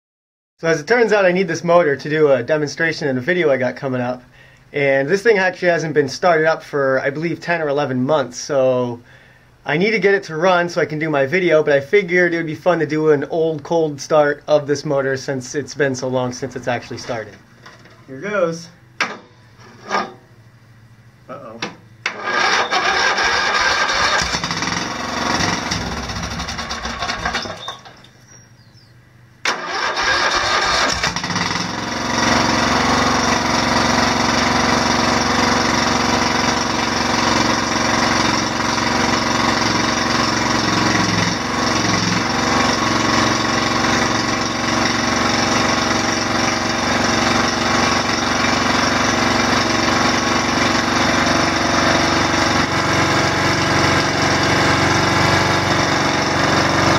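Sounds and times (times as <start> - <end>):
unmuffled small engine starting: 22.0 - 28.4, 29.4 - 52.4.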